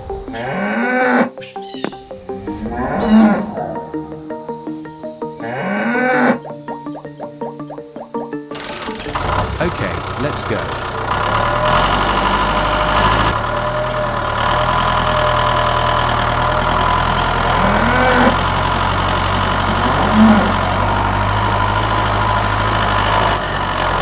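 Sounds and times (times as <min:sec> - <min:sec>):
tractor engine running: 0:00.0 - 0:01.0, 0:08.5 - 0:24.0
high-pitched chirps: 0:00.0 - 0:09.0.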